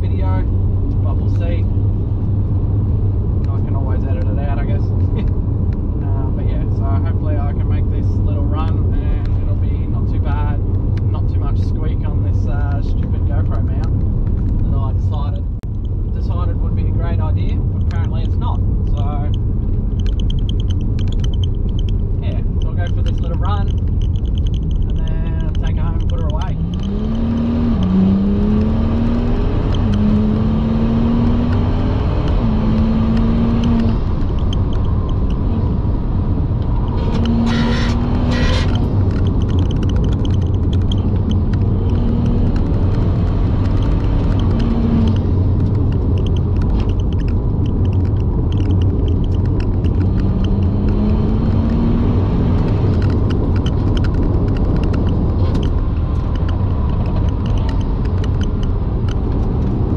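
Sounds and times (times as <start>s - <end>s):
gear changes: 0.0s - 59.9s
low road rumble: 0.0s - 59.9s
car engine revving: 16.1s - 59.9s.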